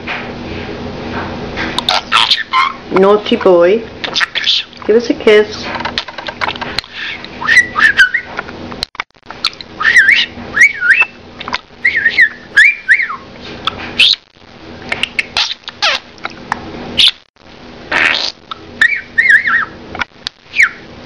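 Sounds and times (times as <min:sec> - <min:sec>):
budgerigar warbling and chattering: 0:01.8 - 0:02.8, 0:15.0 - 0:16.1, 0:17.9 - 0:19.8.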